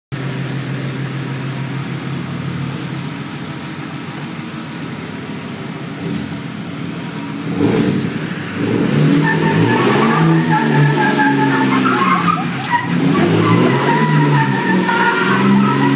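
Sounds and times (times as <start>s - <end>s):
diesel truck engines running: 0.1s - 15.9s
tyres squealing: 8.8s - 15.9s.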